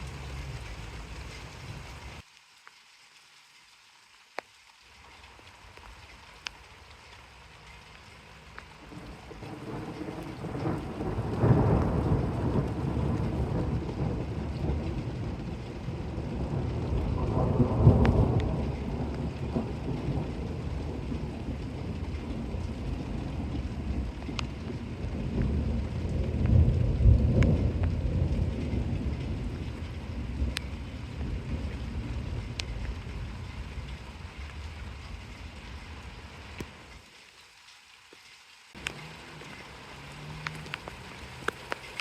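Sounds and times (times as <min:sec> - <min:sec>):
steady rain: 0:00.0 - 0:42.0
thunder rumbling: 0:07.5 - 0:36.6, 0:38.8 - 0:42.0.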